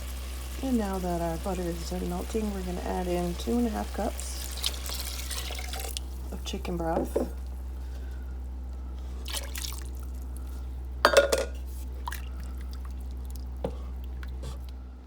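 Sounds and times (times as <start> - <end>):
broth pouring and splashing: 4.1 - 6.1, 9.1 - 10.3, 11.8 - 14.4
cup clinking against pan: 11.1 - 11.6.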